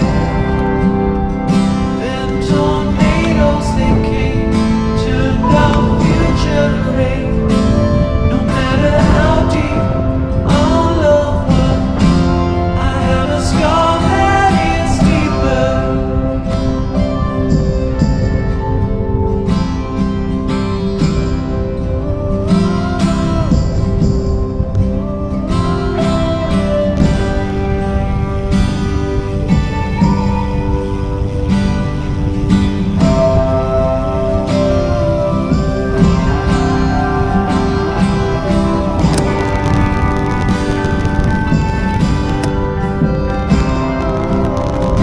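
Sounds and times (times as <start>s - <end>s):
pop song with singing and guitar: 0.0s - 45.0s.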